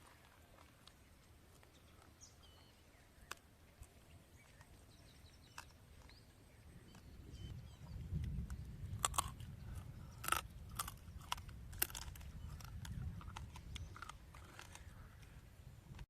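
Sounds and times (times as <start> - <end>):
low background rumble: 4.1 - 16.0.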